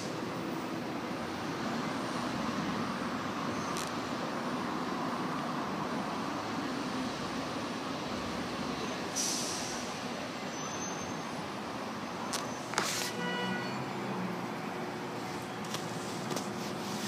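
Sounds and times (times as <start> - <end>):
air hiss: 9.1 - 10.0.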